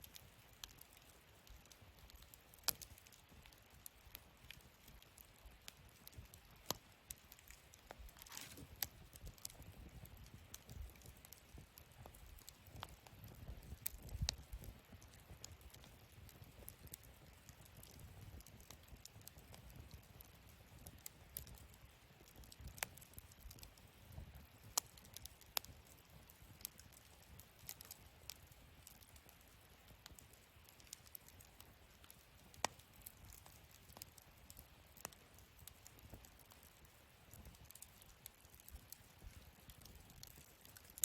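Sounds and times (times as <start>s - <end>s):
wood fire crackling and popping: 0.0s - 41.0s.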